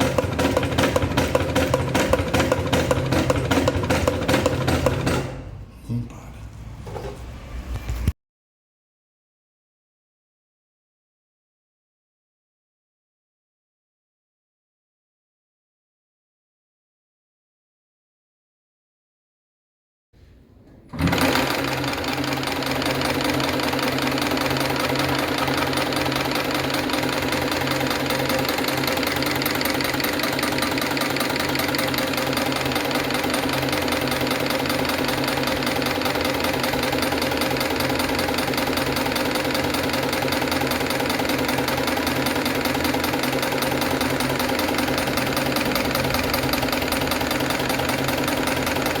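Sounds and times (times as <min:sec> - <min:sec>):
industrial sewing machine knocking: 0:00.0 - 0:05.6, 0:20.9 - 0:49.0.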